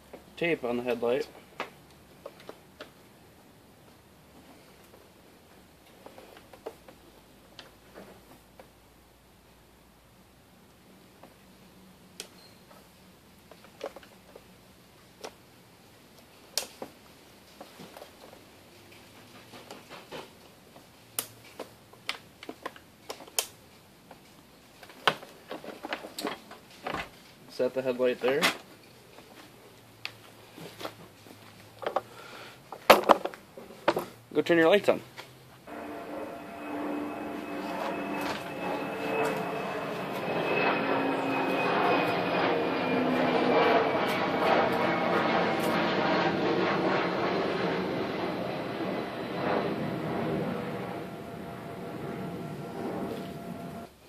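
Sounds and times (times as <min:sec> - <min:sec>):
high whine falling in pitch: 0:35.6 - 0:54.0
engine drone: 0:35.7 - 0:54.0.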